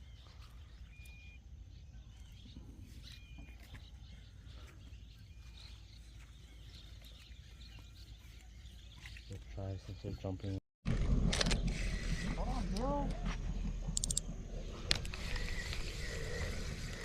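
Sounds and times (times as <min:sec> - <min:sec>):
faint bird chirps: 0:00.0 - 0:10.6.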